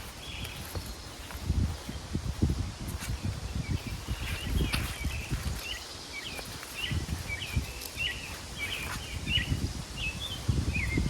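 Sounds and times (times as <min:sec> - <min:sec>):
small bird chirping: 0:03.0 - 0:11.0.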